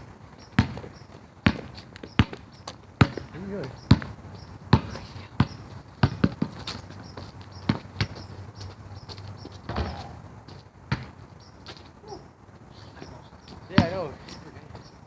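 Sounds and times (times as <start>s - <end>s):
basketball bouncing on hard court: 0.6s - 2.4s, 3.0s - 6.8s, 7.6s - 8.4s, 9.6s - 10.3s, 10.9s - 11.2s, 13.8s - 14.0s.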